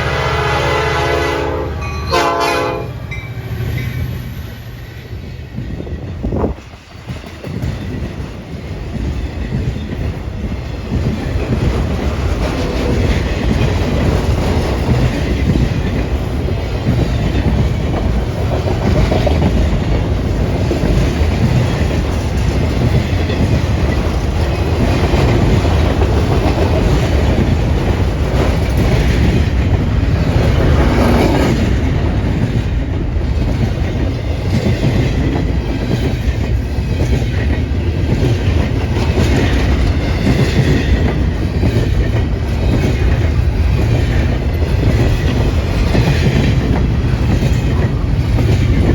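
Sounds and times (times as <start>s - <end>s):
train wheels clattering over rails: 3.5s - 48.9s.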